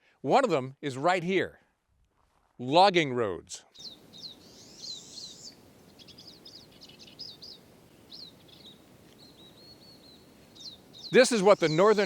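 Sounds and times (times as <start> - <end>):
small songbirds chirping: 3.6 - 12.0
bird trill: 3.7 - 12.0.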